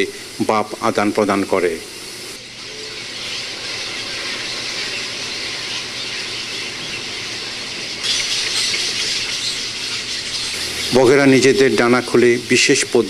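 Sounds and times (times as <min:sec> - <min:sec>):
herons and egrets calling: 0:02.6 - 0:13.0.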